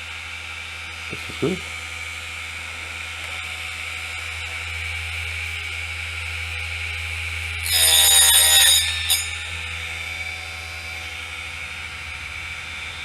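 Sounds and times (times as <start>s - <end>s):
drop saw cutting wood: 7.6s - 9.8s.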